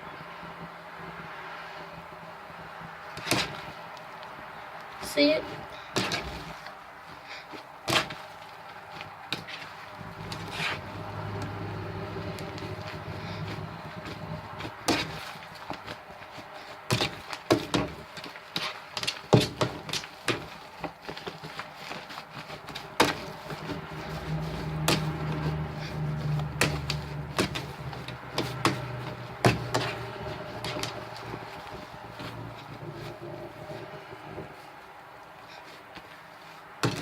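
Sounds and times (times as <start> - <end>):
low hum: 9.8 - 15.8, 22.5 - 35.6.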